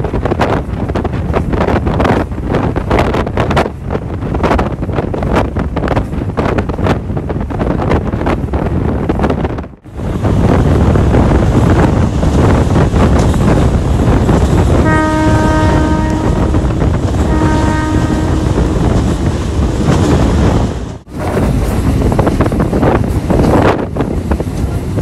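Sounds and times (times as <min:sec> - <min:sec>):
passenger train rumbling: 0:00.0 - 0:25.0
wind buffeting microphone: 0:00.0 - 0:25.0
locomotive horn blasts: 0:14.7 - 0:19.1.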